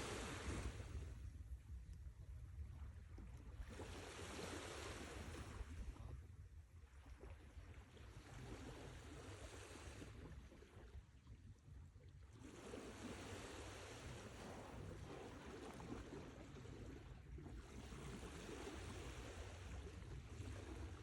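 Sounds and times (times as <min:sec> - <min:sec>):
sea waves washing ashore: 0:00.0 - 0:01.0.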